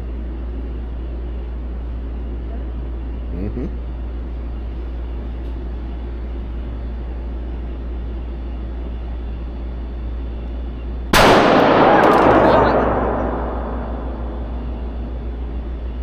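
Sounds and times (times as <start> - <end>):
steady low hum: 0.0 - 16.0
handgun shot with echo: 11.2 - 15.1.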